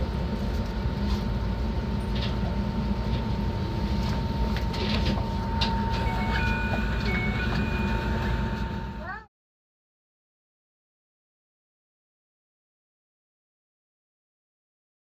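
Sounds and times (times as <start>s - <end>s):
train rumbling: 0.0s - 9.2s
thin steady whine: 1.8s - 9.3s
high wheel squeals: 5.7s - 8.8s.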